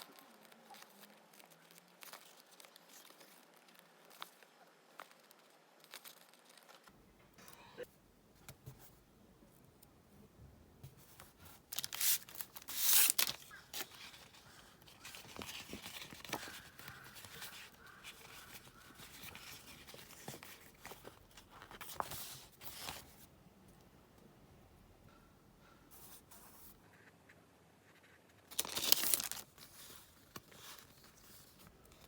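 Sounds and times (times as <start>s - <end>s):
paper rustling: 0.0s - 6.9s, 10.9s - 23.3s, 28.0s - 32.0s
tape peeling and tearing: 11.7s - 14.2s.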